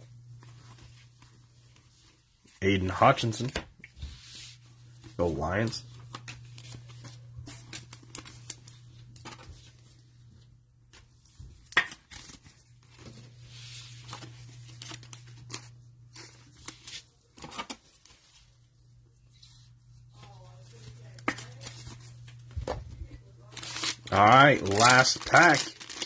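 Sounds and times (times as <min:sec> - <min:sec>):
cellophane wrapper crinkling: 0:05.5 - 0:09.4, 0:20.7 - 0:26.0.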